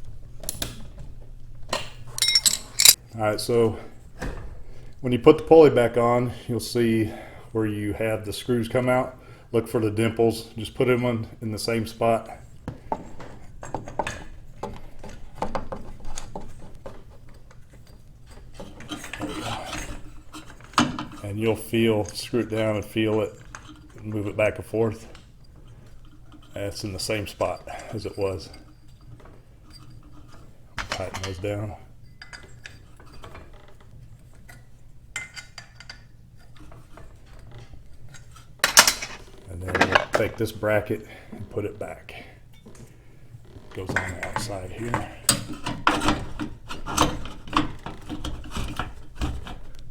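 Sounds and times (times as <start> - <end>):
metal parts clicking and knocking: 2.1 - 3.0.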